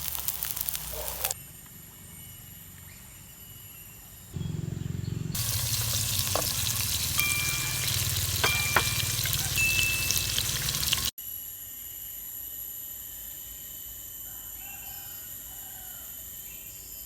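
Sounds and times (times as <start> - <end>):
food sizzling in a pan: 0.0 - 1.4, 5.4 - 11.1
metal utensil clinking pan: 5.4 - 11.1.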